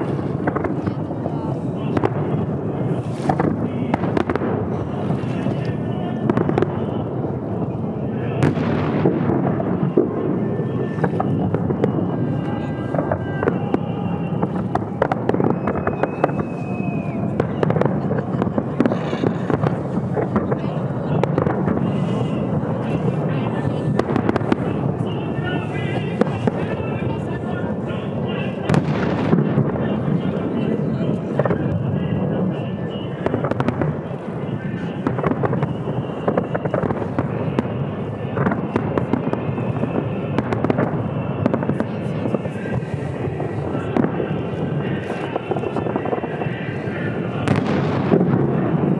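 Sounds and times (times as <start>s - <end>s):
fireworks crackling and popping: 0.0s - 48.9s
high whistle: 15.4s - 17.6s
rumble of bursting shells: 42.6s - 48.9s.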